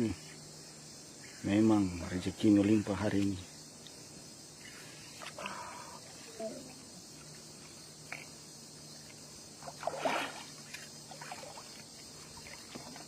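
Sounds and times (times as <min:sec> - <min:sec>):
water splashing: 0:09.6 - 0:13.0.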